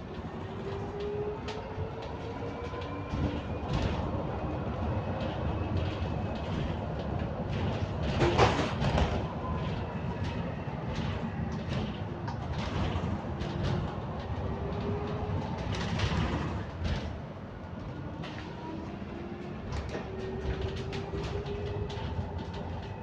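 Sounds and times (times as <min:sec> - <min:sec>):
bus engine rumble: 0:00.0 - 0:23.0
rattles and clicks of bus body: 0:00.0 - 0:23.0
loud clatter: 0:07.5 - 0:14.4, 0:15.4 - 0:17.2.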